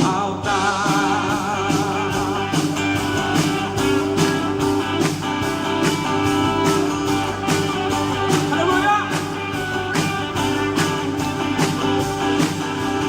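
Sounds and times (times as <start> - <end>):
live band with guitar bass drums: 0.0 - 13.0.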